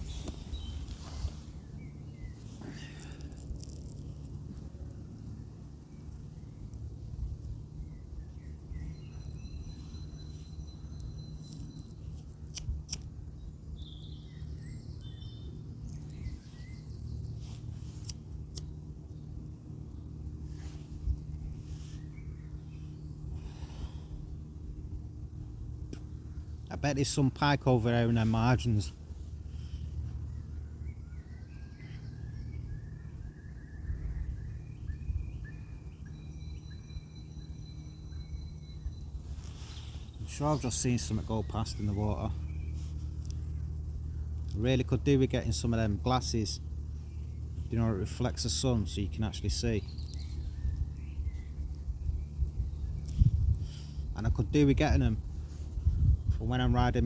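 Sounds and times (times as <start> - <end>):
small birds chirping: 0.0 - 57.0
steady low rumble: 0.0 - 57.0
sharp clicks: 11.0 - 13.1.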